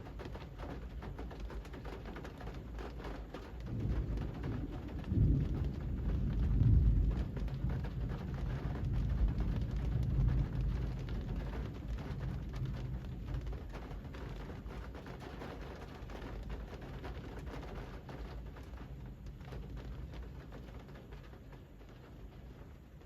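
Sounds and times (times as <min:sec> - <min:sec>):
rain falling on a street: 0:00.0 - 0:23.0
low rumble: 0:03.8 - 0:11.4.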